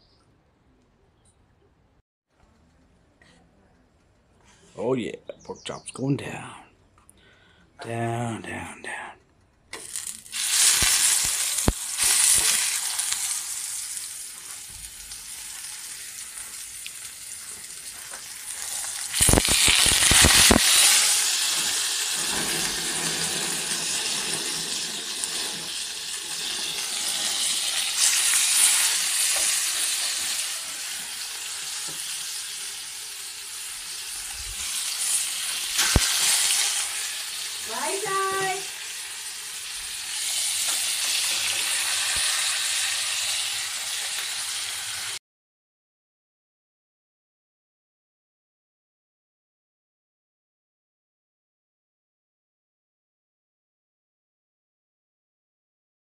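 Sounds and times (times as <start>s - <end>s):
pork chops sizzling in oil: 9.8s - 45.2s.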